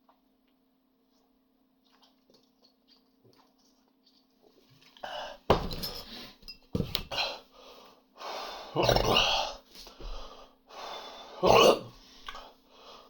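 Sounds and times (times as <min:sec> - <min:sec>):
heavy breathing: 0:07.1 - 0:11.4, 0:12.0 - 0:13.0.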